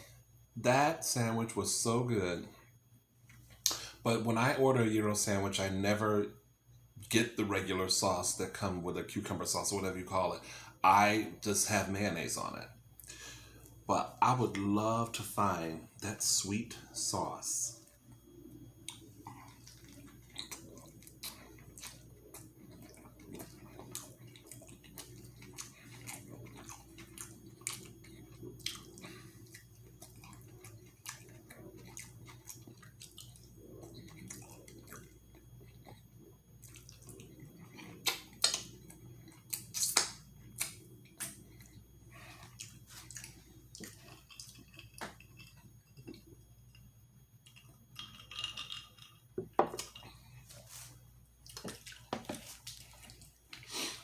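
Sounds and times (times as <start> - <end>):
wet chewing and mouth smacks: 18.7 - 46.8, 51.4 - 53.7.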